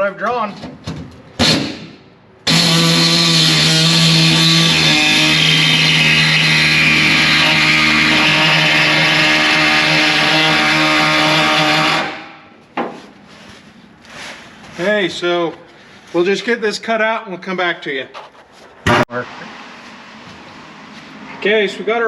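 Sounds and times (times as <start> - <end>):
air saw buzzing: 2.4 - 12.4.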